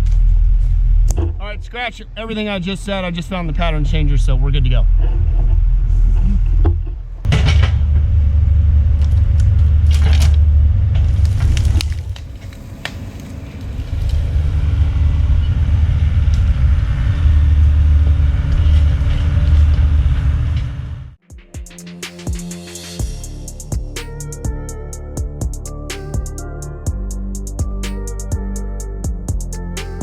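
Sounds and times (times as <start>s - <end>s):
excavator diesel engine under load: 6.5s - 21.2s
branches cracking and snapping: 9.0s - 14.4s.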